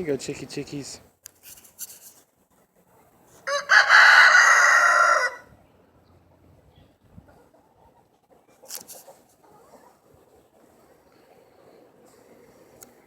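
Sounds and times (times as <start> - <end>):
rooster crowing: 3.4 - 5.5.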